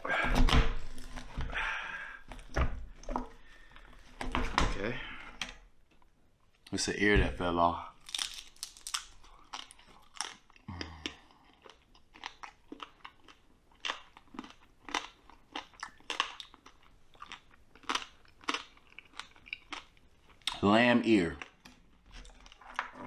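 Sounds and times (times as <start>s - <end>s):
crunchy chewing: 8.0s - 20.6s.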